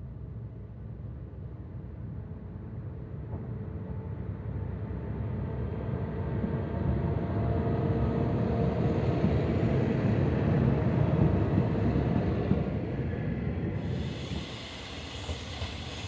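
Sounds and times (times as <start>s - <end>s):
diesel railcar engine and wheels rumbling: 0.0s - 16.0s.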